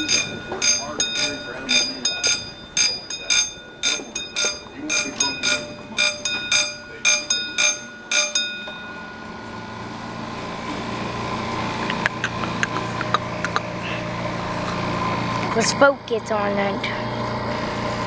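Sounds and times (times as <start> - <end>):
bell ringing rapidly: 0.0 - 9.8
wheel clicks on track: 0.0 - 9.8
small train engine hum: 0.0 - 18.0.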